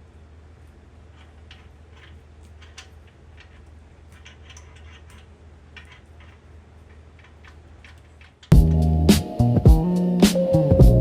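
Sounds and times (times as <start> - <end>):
steady low hum: 0.0 - 11.0
hand tools clicking on metal: 1.1 - 8.8.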